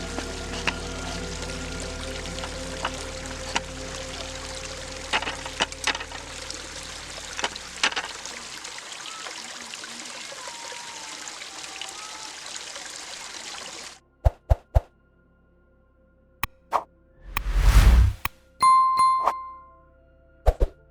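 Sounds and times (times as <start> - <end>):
water trickling: 0.0 - 13.9.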